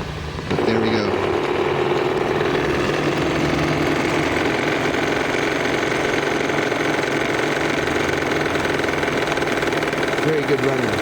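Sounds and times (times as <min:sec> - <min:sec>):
model steam engine beat: 0:00.0 - 0:11.0.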